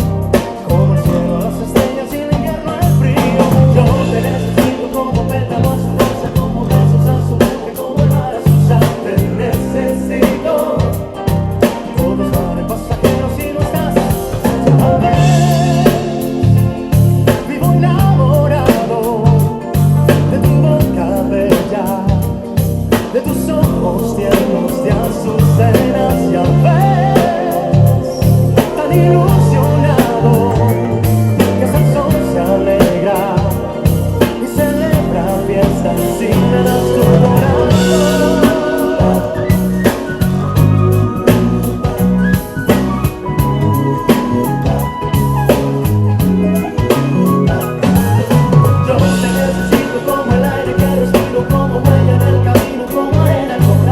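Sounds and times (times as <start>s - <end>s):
backing track with drums and singing: 0.0s - 53.9s
bass guitar low notes: 0.0s - 53.9s.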